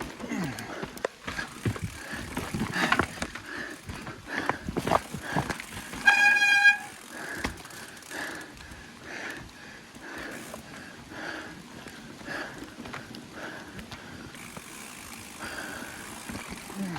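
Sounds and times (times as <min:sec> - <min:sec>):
bike rattle and tyre noise: 0:00.0 - 0:16.9
disc brakes squealing: 0:05.9 - 0:07.0.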